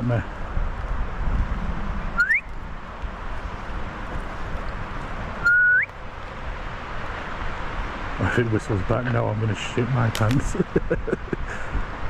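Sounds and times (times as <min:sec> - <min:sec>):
person whistling: 0:02.2 - 0:02.5, 0:05.4 - 0:05.9.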